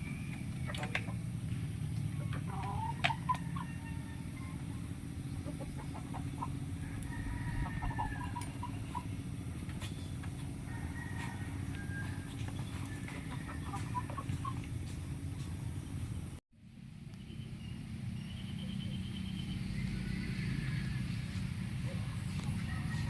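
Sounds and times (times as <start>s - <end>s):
chickens clucking: 0.1s - 1.3s, 1.9s - 15.2s.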